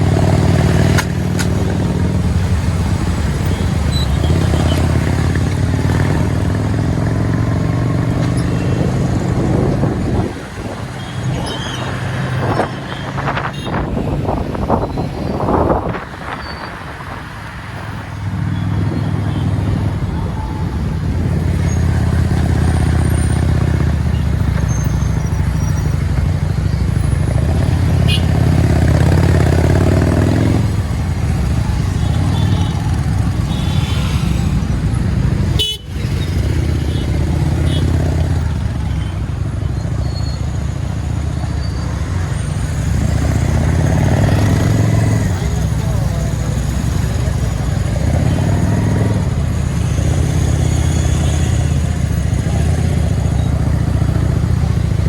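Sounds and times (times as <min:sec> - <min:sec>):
motorcycle engine running: 0:00.0 - 0:10.3
vehicle horns honking: 0:11.0 - 0:15.4, 0:27.9 - 0:28.6, 0:31.8 - 0:38.0.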